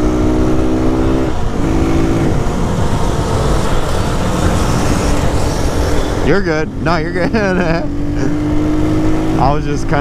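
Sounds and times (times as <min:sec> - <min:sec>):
motorcycle engine running: 0:00.0 - 0:10.0
wind on microphone: 0:01.2 - 0:07.0.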